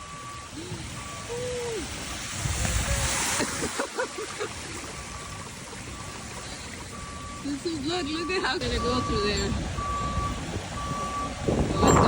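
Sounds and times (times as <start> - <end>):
vehicle driving through floodwater: 0.0 - 12.0
water sloshing: 0.8 - 12.0
faint electronic beep: 11.8 - 12.0.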